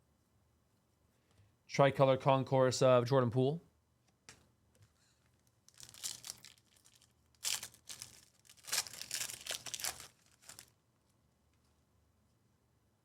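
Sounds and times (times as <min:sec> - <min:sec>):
foil wrapper tearing and crinkling: 0:05.6 - 0:10.7.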